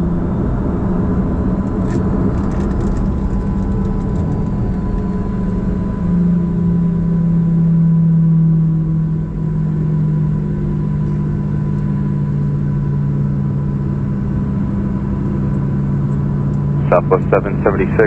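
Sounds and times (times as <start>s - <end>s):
jet engines idling: 8.8s - 18.0s.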